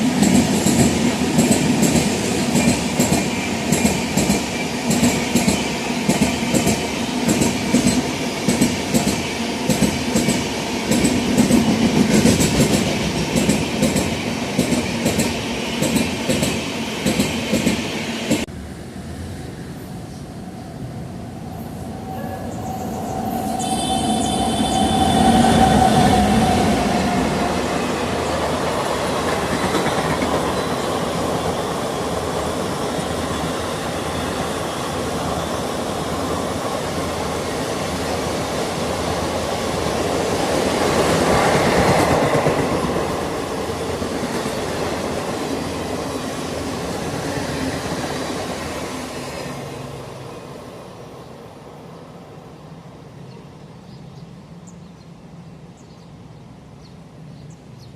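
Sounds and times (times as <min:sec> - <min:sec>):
train wheels clattering on rails: 0:00.1 - 0:18.5, 0:28.4 - 0:33.2.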